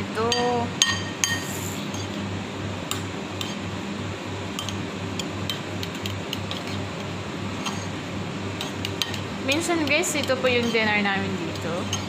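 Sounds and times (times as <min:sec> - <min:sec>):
spoon clinking against bowl: 0:00.3 - 0:02.1, 0:04.6 - 0:06.7, 0:08.6 - 0:10.9.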